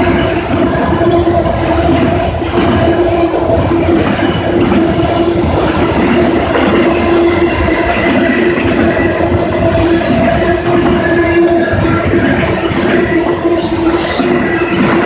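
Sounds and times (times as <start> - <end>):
train wheels clattering over rails: 0.0 - 15.0.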